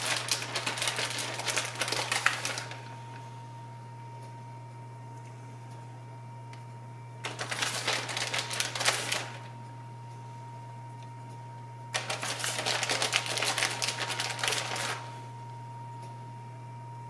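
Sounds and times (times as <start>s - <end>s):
plastic bag crinkling: 0.0s - 3.0s, 7.2s - 9.5s, 12.0s - 15.2s
shredded cheese falling: 0.0s - 3.0s, 7.2s - 9.6s, 12.0s - 15.2s.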